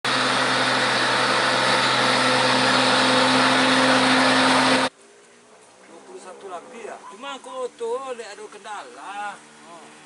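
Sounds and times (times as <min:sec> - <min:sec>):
loud engine drone: 0:00.0 - 0:04.9.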